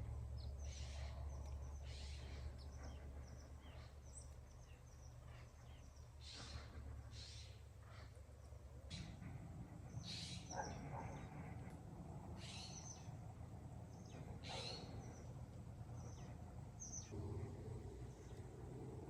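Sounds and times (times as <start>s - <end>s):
birds chirping: 0.0s - 19.0s
steady low rumble: 0.0s - 19.0s.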